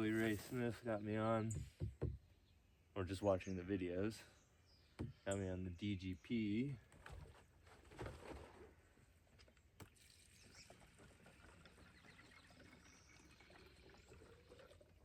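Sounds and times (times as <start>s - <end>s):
soft knock: 1.5s - 2.2s.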